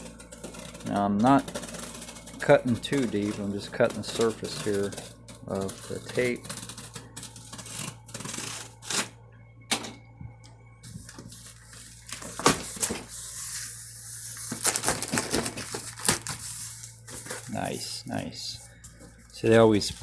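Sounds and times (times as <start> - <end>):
blade cutting packing tape: 0.0 - 9.1
tape and cardboard crackling: 0.0 - 9.1, 10.8 - 17.8.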